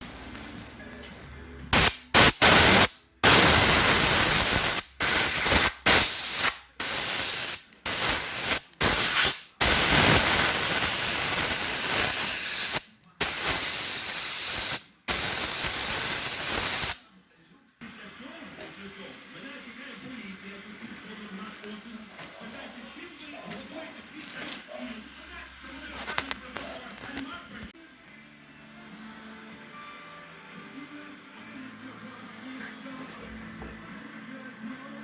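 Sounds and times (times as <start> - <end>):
spray paint hissing bursts: 1.8 - 17.0.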